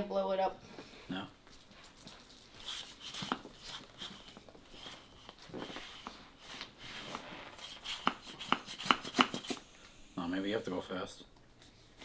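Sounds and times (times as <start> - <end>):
hand pump strokes with air hiss: 2.6 - 10.2.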